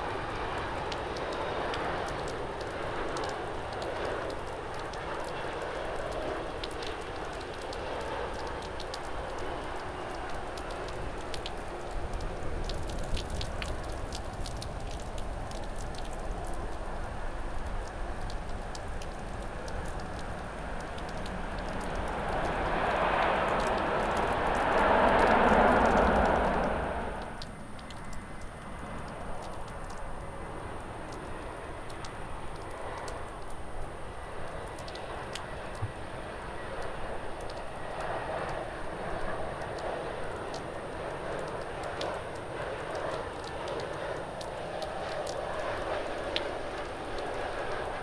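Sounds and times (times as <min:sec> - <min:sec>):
distant jet airliner: 0:00.0 - 0:48.0
heavy rain hissing: 0:14.7 - 0:29.4
raindrop taps: 0:17.5 - 0:26.8, 0:34.7 - 0:36.0.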